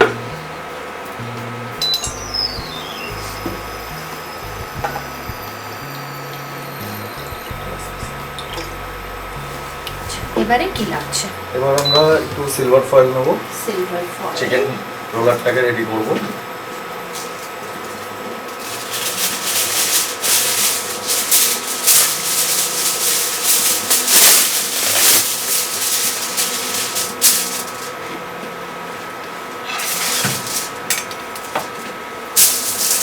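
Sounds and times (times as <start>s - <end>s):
aluminium foil crinkling: 17.2s - 28.1s, 29.7s - 33.0s.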